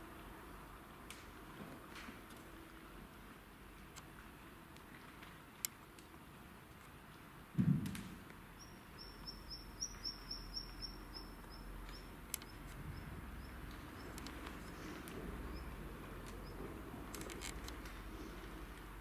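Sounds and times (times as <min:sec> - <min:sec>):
small bird chirping: 0:08.6 - 0:16.6.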